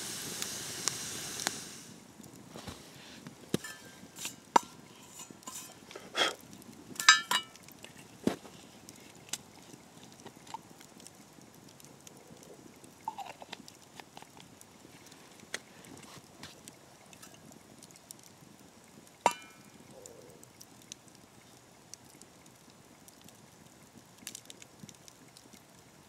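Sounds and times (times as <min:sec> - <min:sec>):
metal cookware clicking and knocking: 0:03.6 - 0:05.7, 0:07.0 - 0:07.6, 0:19.3 - 0:19.6
sharp ringing metal clink: 0:07.0 - 0:07.5.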